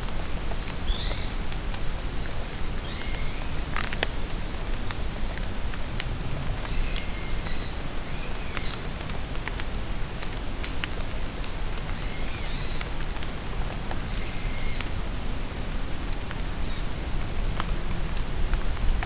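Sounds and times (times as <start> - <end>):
rain falling in forest: 0.0 - 19.0
songbird singing: 0.4 - 4.8, 6.6 - 8.9, 11.9 - 12.9.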